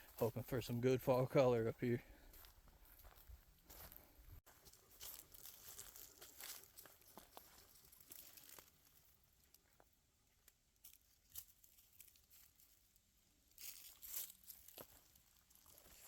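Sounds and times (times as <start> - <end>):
footsteps through dry leaves: 2.3 - 9.1, 10.8 - 12.8, 13.5 - 16.0.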